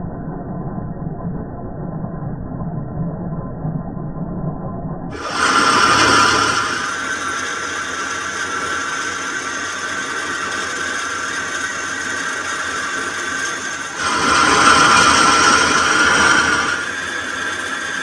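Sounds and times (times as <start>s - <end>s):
harsh metal cutting noise: 5.1s - 18.0s
metal lathe whining: 5.1s - 18.0s.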